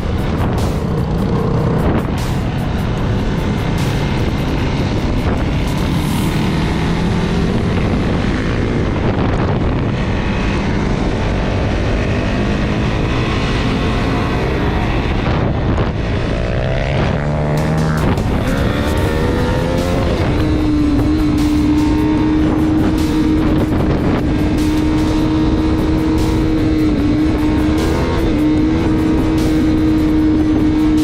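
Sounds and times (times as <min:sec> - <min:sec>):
off-road vehicle engine running: 0:00.0 - 0:31.0
wind rushing over microphone: 0:00.0 - 0:31.0.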